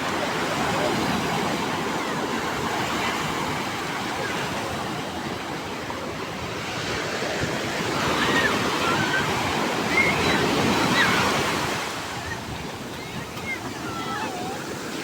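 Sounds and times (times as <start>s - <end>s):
rough surf breaking on shore: 0.0s - 15.0s.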